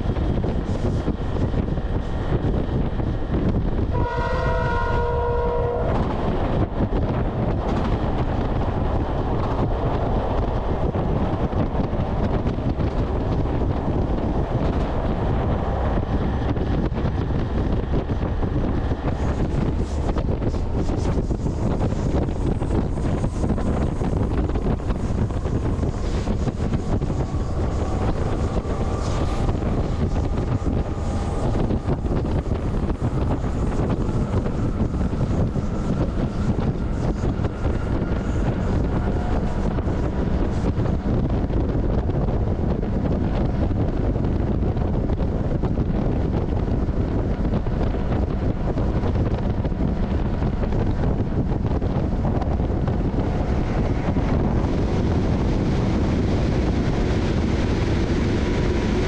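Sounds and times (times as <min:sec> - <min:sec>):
train wheels rumbling on rail: 0:00.0 - 0:59.0
wind on microphone: 0:00.0 - 0:59.0
locomotive horn blast: 0:03.9 - 0:06.1.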